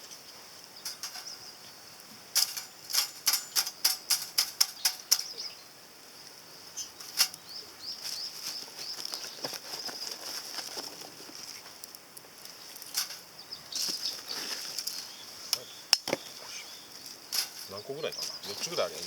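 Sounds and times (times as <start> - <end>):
faint high hiss: 0.0 - 19.0
charcoal clinking: 0.7 - 1.4, 2.3 - 5.5, 7.0 - 7.4, 8.0 - 16.2, 17.0 - 19.0.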